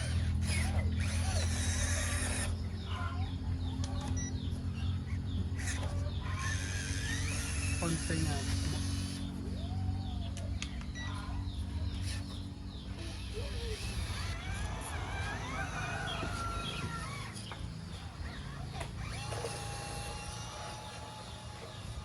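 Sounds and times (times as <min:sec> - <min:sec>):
birds calling: 0:00.0 - 0:22.0
chickens clucking: 0:00.0 - 0:22.0
steady low hum: 0:00.0 - 0:22.0.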